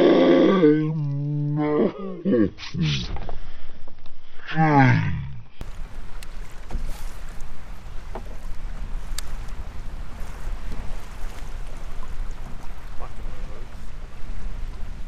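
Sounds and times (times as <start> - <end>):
water lapping against kayak: 5.6 - 15.0
wind rumbling on microphone: 5.6 - 15.0
faint clicks: 9.0 - 9.6.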